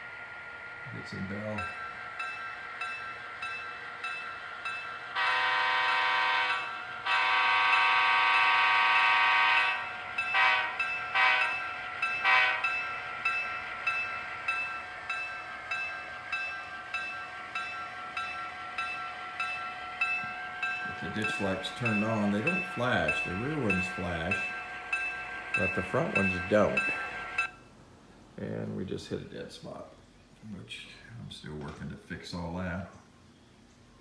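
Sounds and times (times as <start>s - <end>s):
model locomotive bell ringing: 0.0s - 27.6s
locomotive horn blasts: 5.1s - 14.0s, 18.7s - 27.5s.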